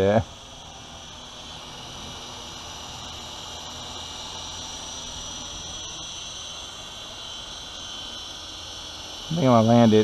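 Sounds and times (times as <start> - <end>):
insects chirring: 0.0 - 10.0
rc helicopter humming: 0.0 - 10.0.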